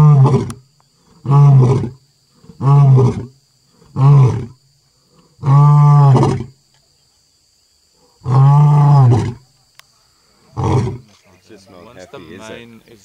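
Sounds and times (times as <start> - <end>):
lion roaring: 0.0 - 4.6, 8.2 - 9.4, 10.5 - 11.2.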